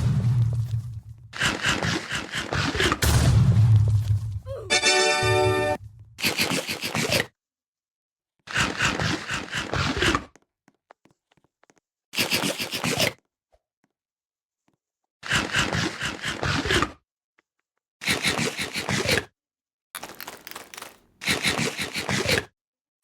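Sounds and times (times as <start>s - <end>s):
scraping rasping noise: 1.0s - 3.0s, 20.0s - 22.5s.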